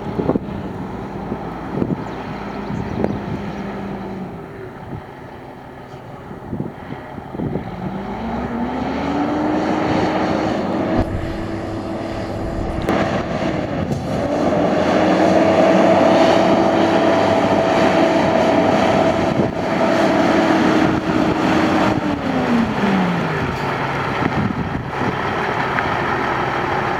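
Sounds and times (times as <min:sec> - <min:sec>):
truck engine revving: 0:07.4 - 0:26.9.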